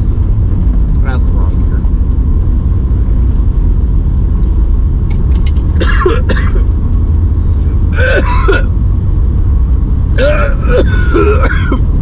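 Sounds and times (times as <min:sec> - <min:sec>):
car engine and road noise: 0:00.0 - 0:12.0
throaty vocal sounds: 0:07.6 - 0:08.7, 0:10.1 - 0:11.8.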